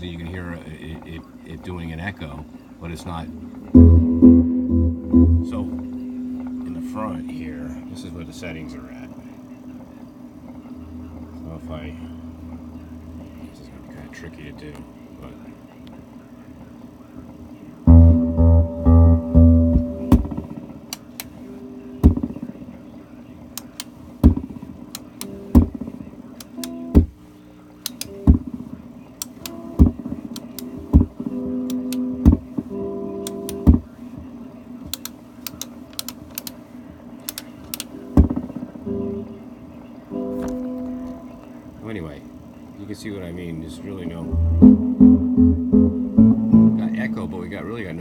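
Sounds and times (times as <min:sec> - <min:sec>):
electric guitar notes with echo: 0:03.7 - 0:08.5, 0:17.8 - 0:20.5, 0:44.3 - 0:47.6.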